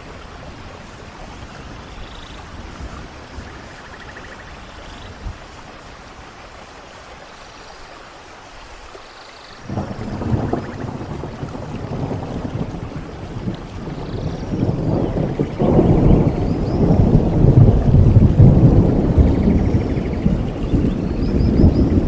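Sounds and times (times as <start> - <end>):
steady rain: 0.0 - 22.0
thunder rumbling: 9.6 - 22.0.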